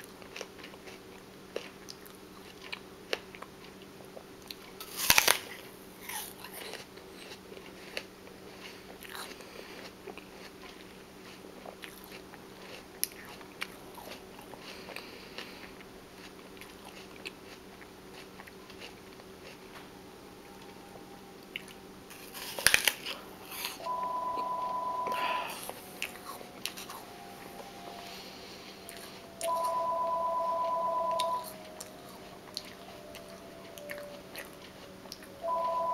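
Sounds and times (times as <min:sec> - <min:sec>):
faint steady hum: 0:00.0 - 0:35.9
person biting crunchy food: 0:04.8 - 0:06.8, 0:21.6 - 0:23.8
steady high tone: 0:19.4 - 0:35.9.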